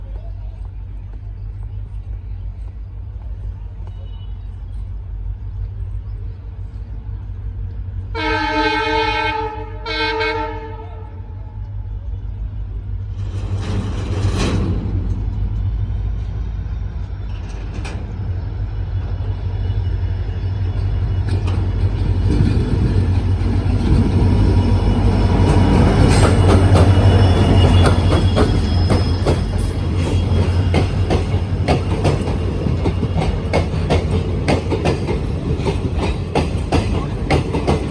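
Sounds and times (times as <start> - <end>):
locomotive horn blasts: 8.1 - 11.2
train wheels clicking on rail joints: 12.8 - 37.9.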